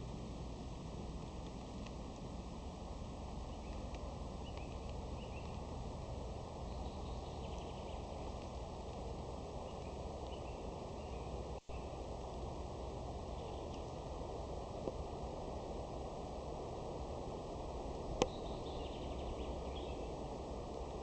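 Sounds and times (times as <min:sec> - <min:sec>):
steady hiss and low rumble: 0:00.0 - 0:21.0
faint bird chirps: 0:03.4 - 0:05.6, 0:06.6 - 0:08.4, 0:09.6 - 0:12.1, 0:13.3 - 0:13.8, 0:18.2 - 0:20.4.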